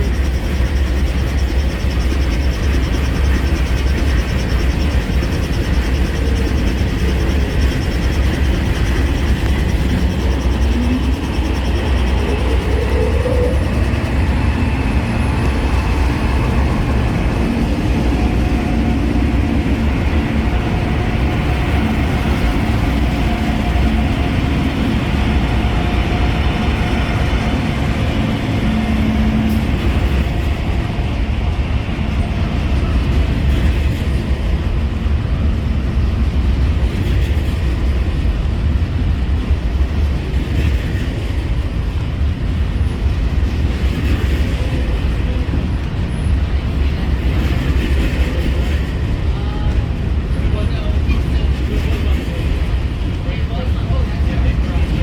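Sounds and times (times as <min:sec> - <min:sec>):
faint whining tones: 0:00.0 - 0:34.0.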